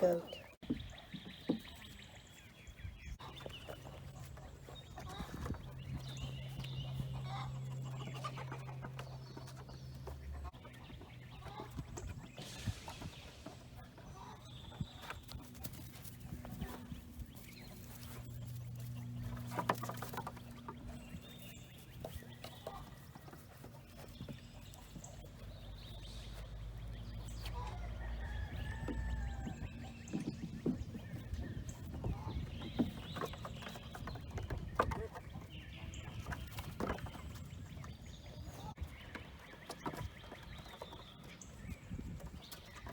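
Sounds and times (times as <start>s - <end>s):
chickens clucking: 0.0s - 42.9s.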